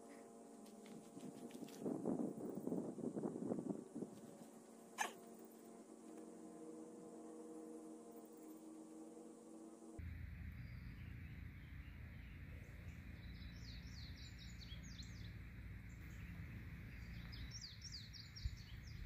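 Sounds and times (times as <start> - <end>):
low outdoor rumble: 0.0 - 19.0
small bird singing: 5.0 - 5.2, 10.5 - 19.0.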